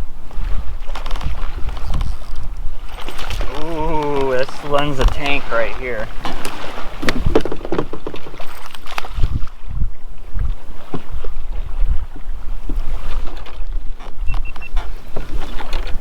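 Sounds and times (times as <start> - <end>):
wind buffeting microphone: 0.0 - 16.0
kayak knocks and thumps: 0.3 - 16.0
short high beeps: 14.3 - 14.8.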